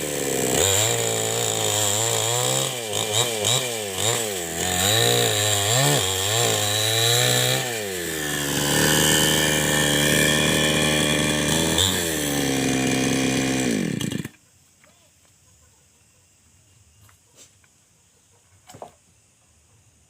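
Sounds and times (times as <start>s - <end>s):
chainsaw engine revving: 0.0s - 14.4s.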